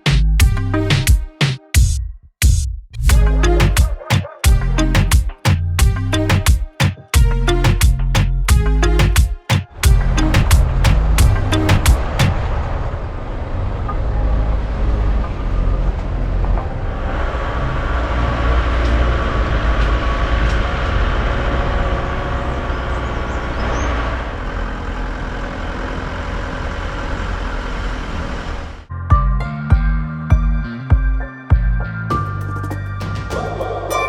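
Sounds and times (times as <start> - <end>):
vehicle engine and road noise: 7.2 - 28.9.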